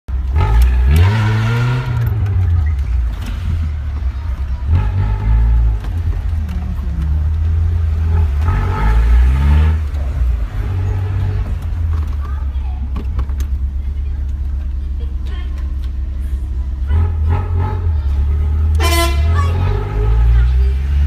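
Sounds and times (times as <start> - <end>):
engine revving: 0.1 - 12.2, 16.7 - 21.0.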